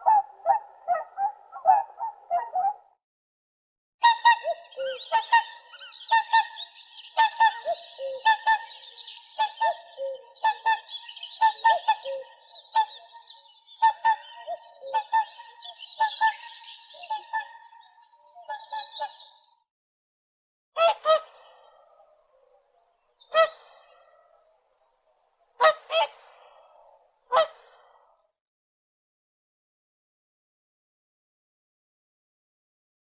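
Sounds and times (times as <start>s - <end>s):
swans bugling calls: 4.0s - 17.4s.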